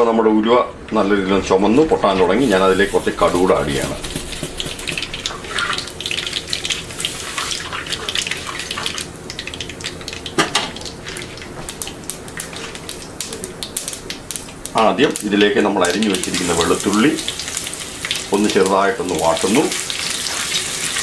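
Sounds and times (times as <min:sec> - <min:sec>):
frying hiss: 0:02.0 - 0:21.0
seeds spluttering in hot oil: 0:02.8 - 0:21.0.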